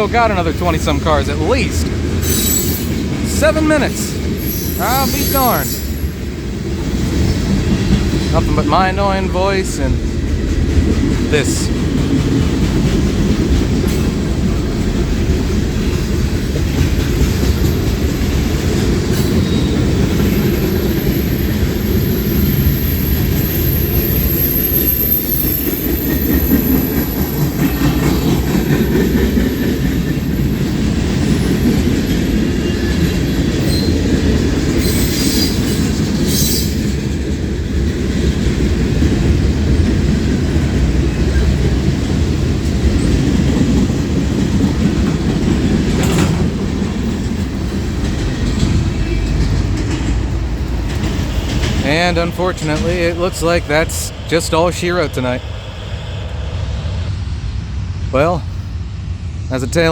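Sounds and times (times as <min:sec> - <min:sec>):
wheels clacking over rail joints: 0:00.0 - 0:53.8
train wheels rumbling on rail: 0:00.0 - 0:59.9
high wheel squeal: 0:02.2 - 0:03.1, 0:03.9 - 0:06.3, 0:19.2 - 0:27.6, 0:34.8 - 0:37.0.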